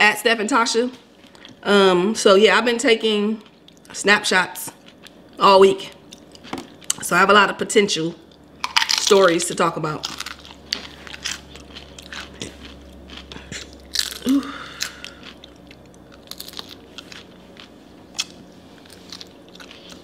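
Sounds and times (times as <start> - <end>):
crunching and chewing crisp food: 1.2 - 1.6, 3.4 - 4.0, 4.7 - 7.1, 8.2 - 20.0.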